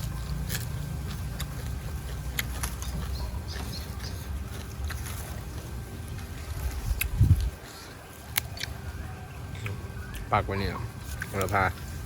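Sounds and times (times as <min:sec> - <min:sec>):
person chewing: 0:00.0 - 0:10.3
wind buffeting microphone: 0:05.8 - 0:07.7.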